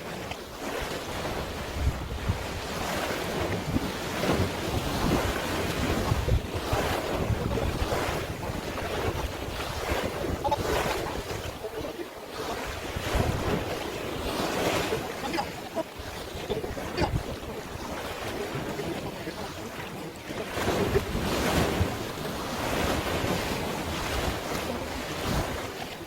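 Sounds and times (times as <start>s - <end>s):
sea waves washing in: 0.0s - 26.0s
wind buffeting microphone: 0.6s - 25.8s.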